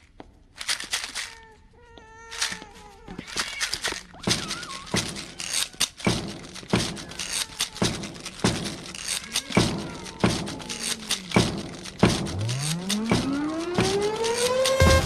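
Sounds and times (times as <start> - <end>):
heavy thuds: 4.4 - 15.0.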